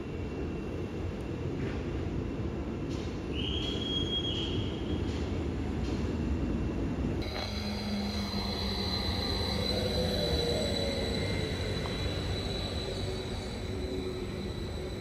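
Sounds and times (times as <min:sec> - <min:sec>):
electric train whine: 0:00.0 - 0:15.0
train rolling rumble: 0:00.0 - 0:15.0
train wheel squeal: 0:03.0 - 0:06.0, 0:07.2 - 0:15.0
low electric hum: 0:07.1 - 0:15.0.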